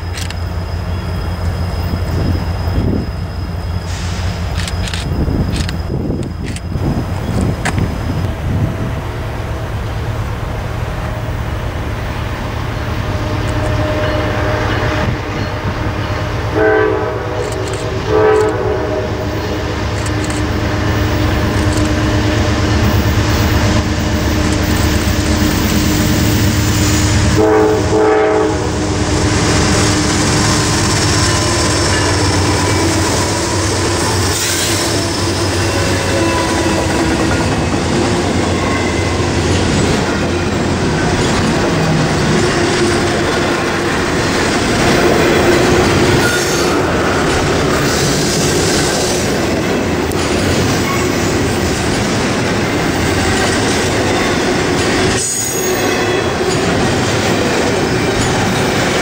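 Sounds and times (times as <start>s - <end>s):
diesel locomotive engine rumble: 0.0s - 59.0s
locomotive horn: 12.6s - 48.0s
freight cars clattering on rails: 29.5s - 59.0s.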